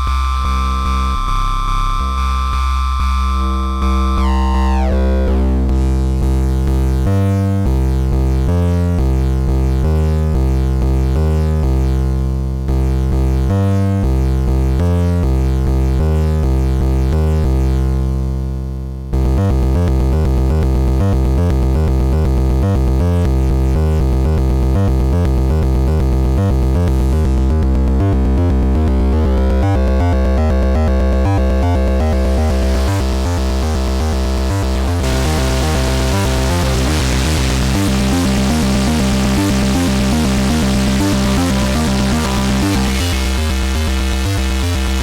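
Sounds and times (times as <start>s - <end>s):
stepped synth notes: 0.0s - 7.9s, 26.5s - 45.0s.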